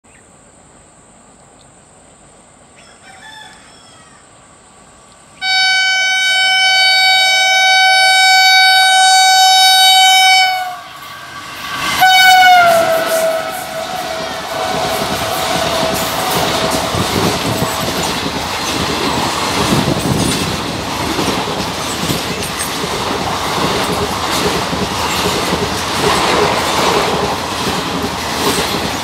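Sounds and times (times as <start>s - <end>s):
rumble of passing train: 4.0s - 29.0s
locomotive horn blast: 5.4s - 17.8s.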